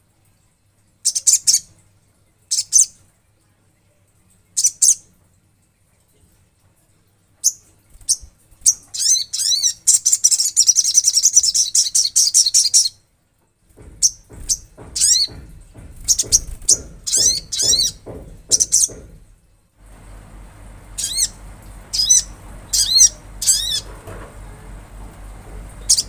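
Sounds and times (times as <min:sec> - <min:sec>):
sunbird singing: 0:16.1 - 0:19.0, 0:20.0 - 0:24.0, 0:24.6 - 0:26.0.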